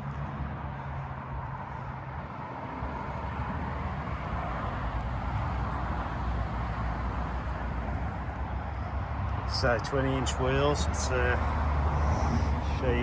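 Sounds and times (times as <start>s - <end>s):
road traffic rumble: 0.0s - 13.0s
hiss of passing tyres: 9.5s - 13.0s.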